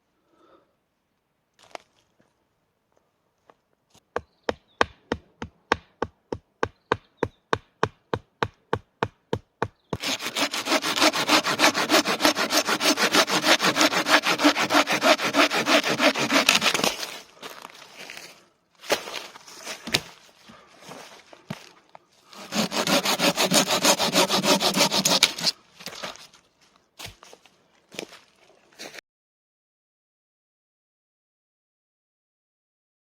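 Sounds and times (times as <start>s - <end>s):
hand saw cutting wood: 9.9s - 17.3s, 22.2s - 26.2s.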